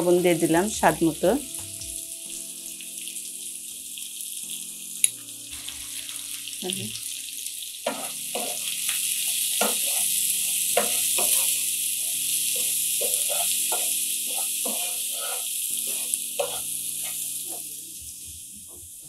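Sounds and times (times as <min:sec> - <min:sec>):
potatoes sizzling in oil: 0:00.0 - 0:19.0
spatula stirring: 0:07.8 - 0:11.6, 0:12.5 - 0:17.6.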